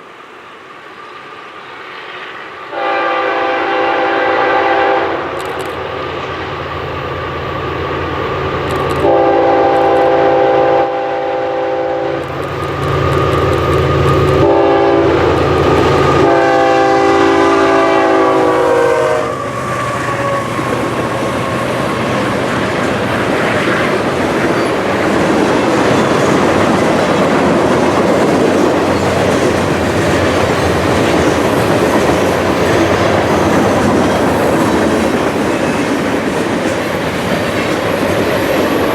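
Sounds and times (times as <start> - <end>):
train cars rumbling on rails: 0.0 - 38.9
locomotive air horn blasts: 2.7 - 5.3, 9.0 - 12.3, 14.4 - 19.5.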